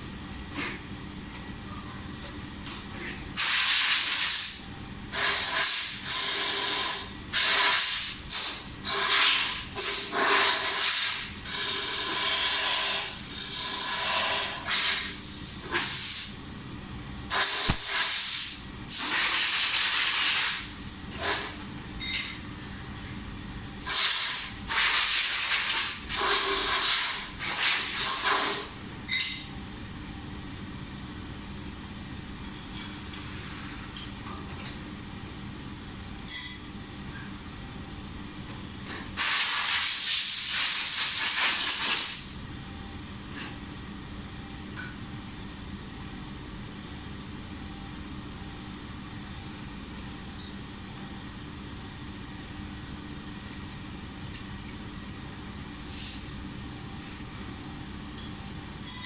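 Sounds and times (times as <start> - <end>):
steady background hum: 0.0 - 59.0
loud hissing bursts: 3.4 - 16.4, 17.3 - 21.5, 23.8 - 28.7, 39.2 - 42.4.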